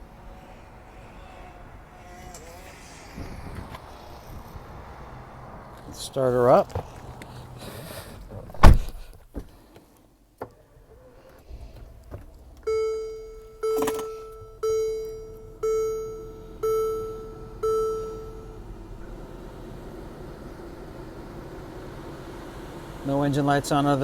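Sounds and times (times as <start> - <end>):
loud thump inside car: 8.4 - 9.5
seatbelt warning chime: 12.6 - 19.0.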